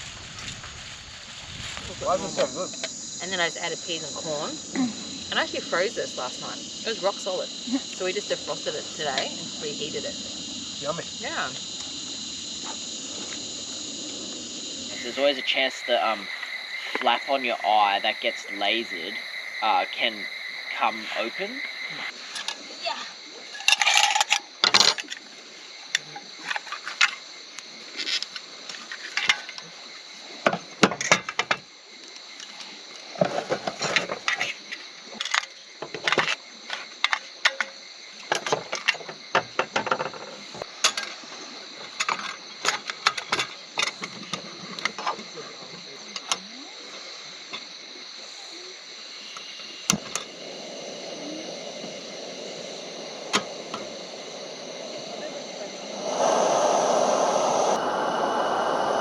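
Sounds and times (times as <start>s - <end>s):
frogs and insects chorus: 0.0s - 59.0s
utensils and dishes clattering: 23.6s - 25.1s
low steady rushing: 49.9s - 59.0s.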